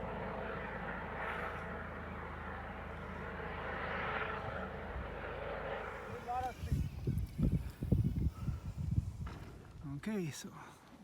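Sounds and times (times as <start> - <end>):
wind on microphone: 5.8 - 10.0.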